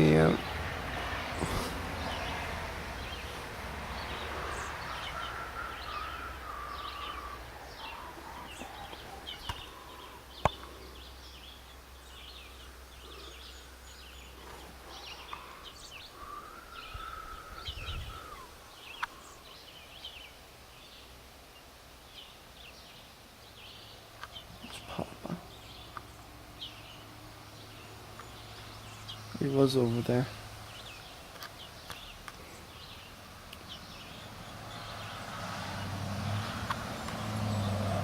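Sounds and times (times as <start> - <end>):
small songbirds chirping: 0.0 - 38.0.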